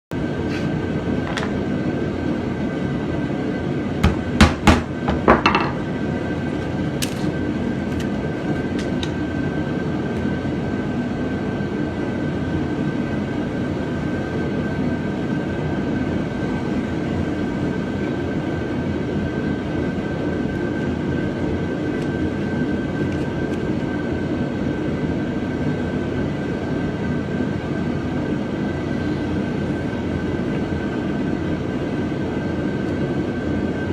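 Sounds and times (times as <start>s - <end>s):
loud sharp knocks: 4.0s - 5.7s
machine drone with high whine: 5.4s - 33.9s.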